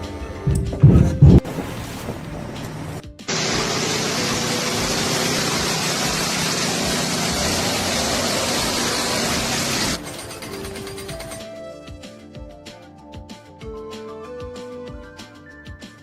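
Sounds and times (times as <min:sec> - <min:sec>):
loud hissing machine noise: 0:03.3 - 0:10.0.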